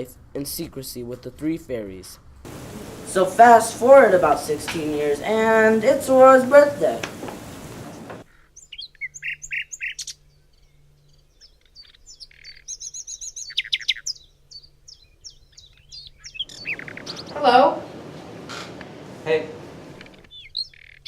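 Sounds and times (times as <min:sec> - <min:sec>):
songbirds chirping and singing: 0:02.5 - 0:21.0.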